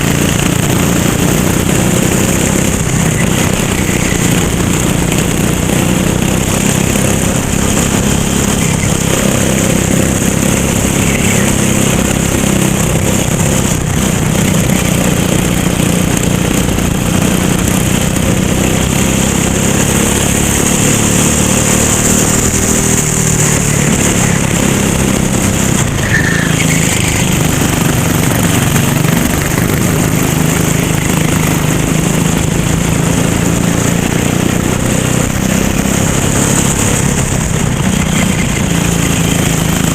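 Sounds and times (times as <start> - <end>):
racing kart engine running: 0.0 - 39.9.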